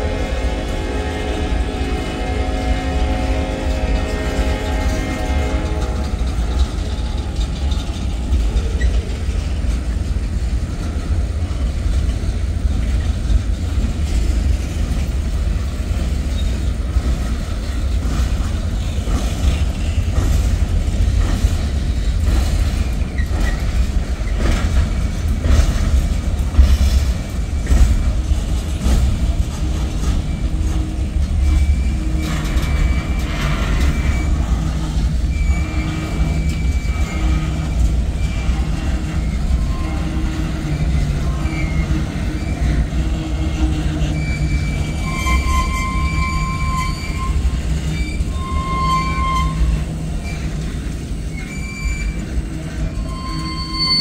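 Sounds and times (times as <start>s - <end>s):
freight train rumbling past: 0.0s - 54.0s
train wheel clicks and knocks: 3.9s - 43.0s
high wheel squeal: 29.6s - 54.0s.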